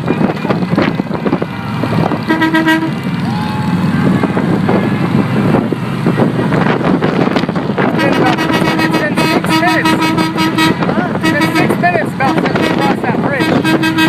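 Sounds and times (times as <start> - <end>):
motorcycle engines rumbling: 0.0 - 14.0
vehicle horn tooting: 2.3 - 3.4, 7.9 - 14.0.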